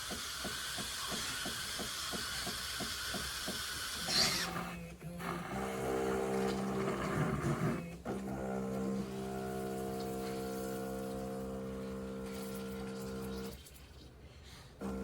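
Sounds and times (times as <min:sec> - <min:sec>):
espresso machine hissing: 0:09.0 - 0:13.6.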